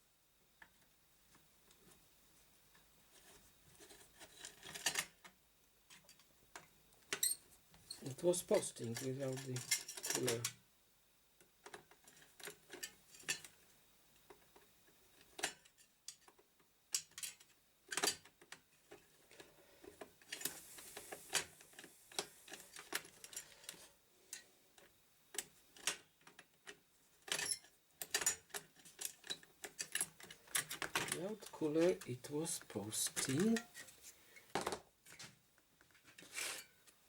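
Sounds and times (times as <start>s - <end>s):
faint hiss: 19.5s - 22.8s.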